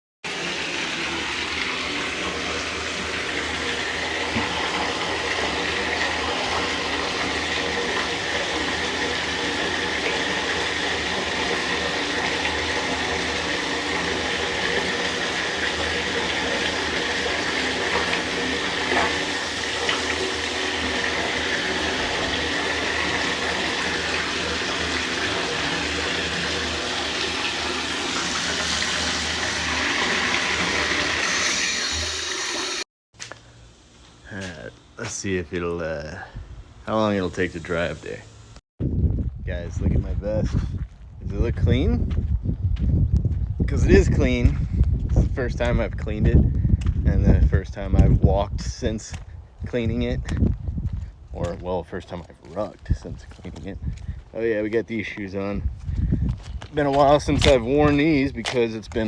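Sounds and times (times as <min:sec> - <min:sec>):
shower water spraying: 0:00.3 - 0:32.9.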